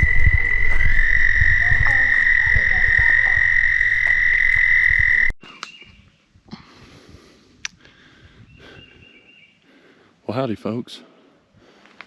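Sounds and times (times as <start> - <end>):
low thuds: 0.0 - 5.4
trilling frog chorus: 0.0 - 5.4.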